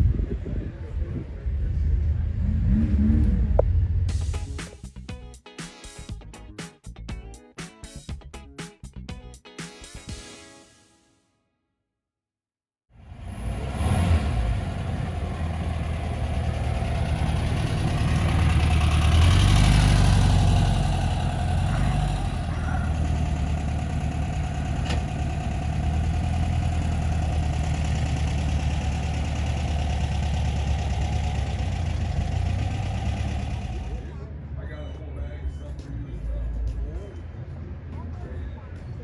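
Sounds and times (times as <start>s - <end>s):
car engine running: 0.0s - 4.7s, 13.0s - 35.7s.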